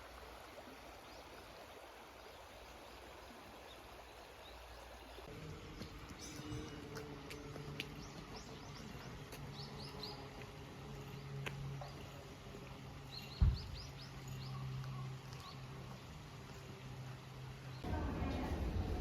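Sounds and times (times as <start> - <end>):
songbird chirping: 2.2 - 19.0
dull thump: 13.4 - 13.8.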